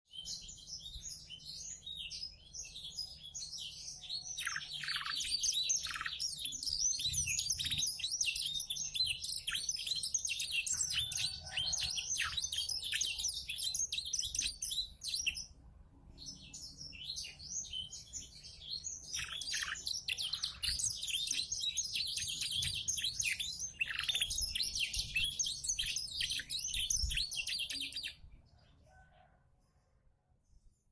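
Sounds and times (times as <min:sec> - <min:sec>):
canary singing: 0:00.1 - 0:15.6, 0:16.2 - 0:28.3.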